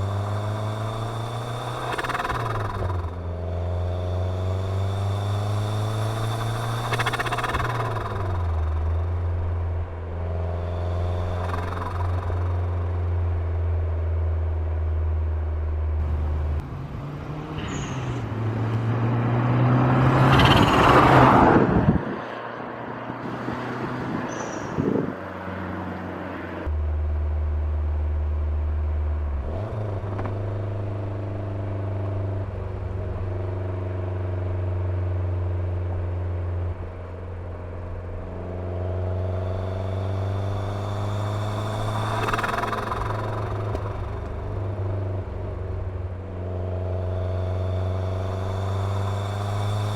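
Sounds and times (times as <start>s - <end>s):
car engine running: 0.0s - 17.3s, 26.6s - 49.9s
loud rush: 39.2s - 49.9s.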